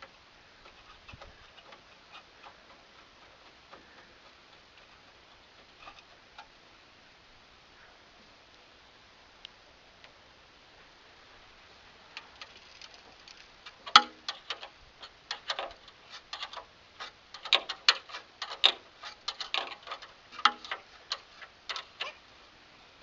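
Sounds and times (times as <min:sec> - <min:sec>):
metallic clicks of hand tools: 0:12.4 - 0:22.1.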